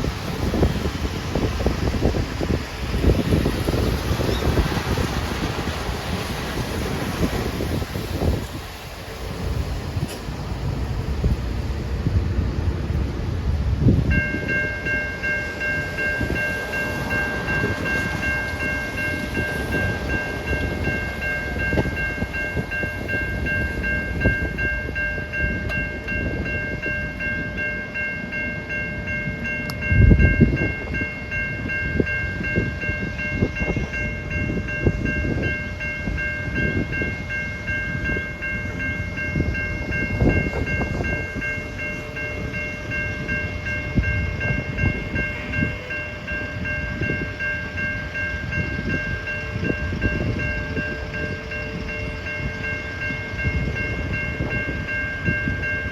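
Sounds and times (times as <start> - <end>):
level crossing bells ringing: 14.1 - 55.9.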